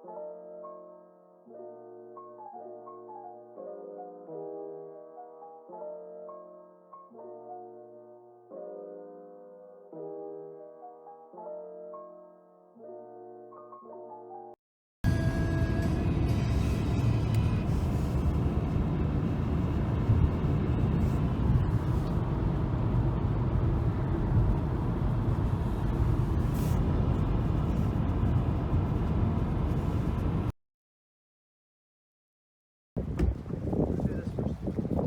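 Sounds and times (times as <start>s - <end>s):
low rumbling noise: 15.1s - 30.5s.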